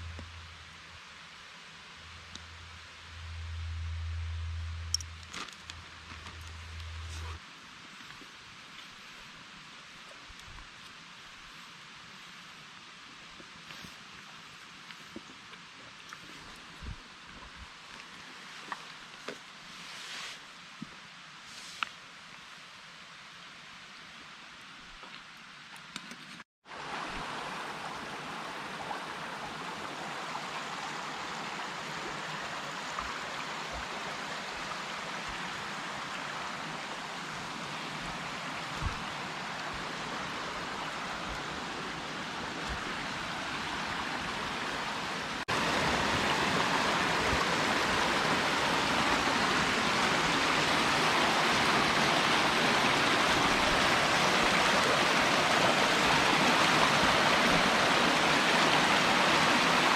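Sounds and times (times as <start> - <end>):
stream babbling: 0.0 - 8.7, 26.7 - 59.9.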